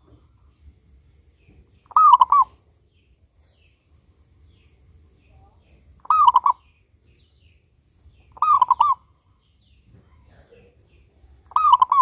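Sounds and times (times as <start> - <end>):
dove cooing: 1.9 - 2.6, 6.0 - 6.6, 8.3 - 9.0, 11.5 - 12.0.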